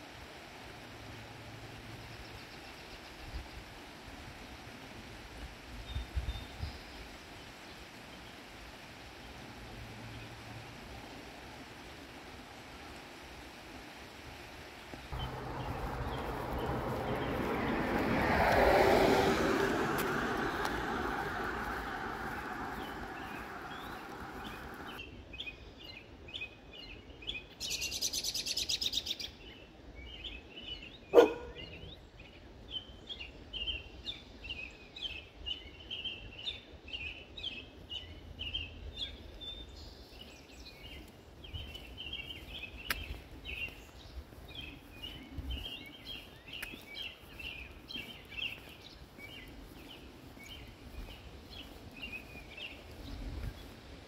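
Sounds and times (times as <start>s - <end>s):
songbirds chirping: 14.4s - 54.0s.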